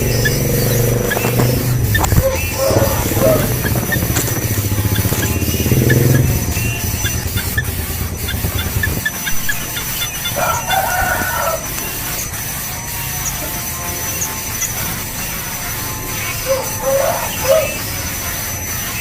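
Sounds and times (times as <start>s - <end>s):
rooster crowing: 1.9s - 3.6s, 10.0s - 12.0s, 16.5s - 17.8s.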